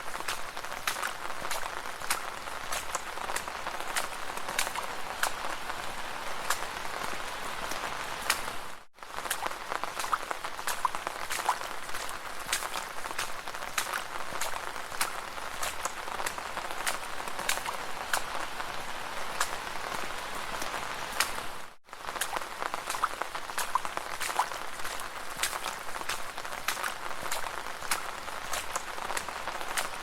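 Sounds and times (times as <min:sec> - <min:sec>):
footsteps splashing through puddles: 0:00.0 - 0:30.0
water dripping: 0:00.0 - 0:30.0.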